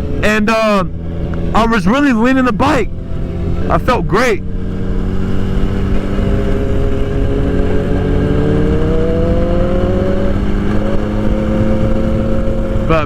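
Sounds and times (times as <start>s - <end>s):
motorcycle engine running: 0.0s - 13.0s
wind noise: 0.0s - 13.0s.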